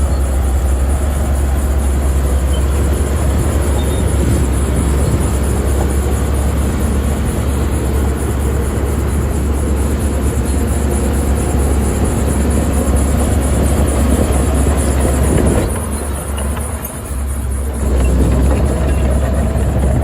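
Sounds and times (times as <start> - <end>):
heavy diesel machinery rumbling: 0.0 - 20.0.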